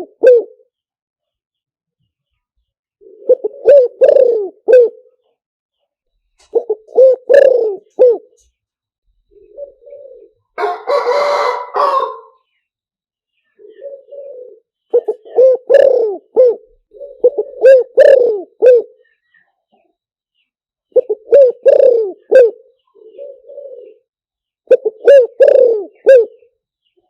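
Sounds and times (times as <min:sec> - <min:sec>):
dove cooing: 0:00.0 - 0:00.7, 0:03.0 - 0:05.2, 0:06.4 - 0:08.4, 0:09.3 - 0:12.4, 0:13.5 - 0:19.1, 0:20.9 - 0:26.6.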